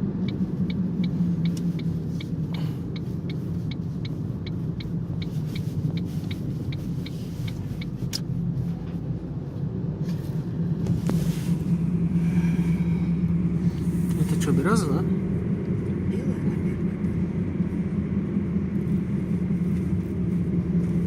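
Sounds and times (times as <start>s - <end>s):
car cabin road drone: 0.0s - 21.0s
light regular ticking: 0.2s - 8.4s.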